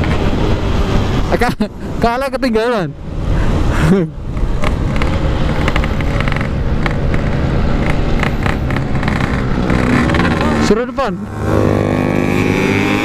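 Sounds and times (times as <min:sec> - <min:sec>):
two-stroke motorcycle engine running: 0:04.7 - 0:11.7.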